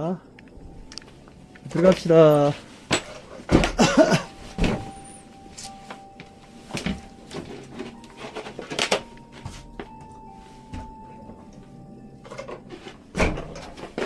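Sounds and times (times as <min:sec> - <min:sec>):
door opening and shutting: 0:02.9 - 0:06.1, 0:12.2 - 0:14.0.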